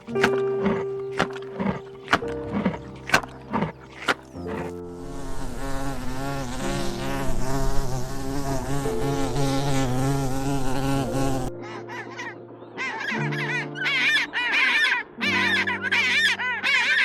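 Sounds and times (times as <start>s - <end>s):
flying insect buzzing: 0.0s - 11.5s
held background chords: 0.0s - 15.9s.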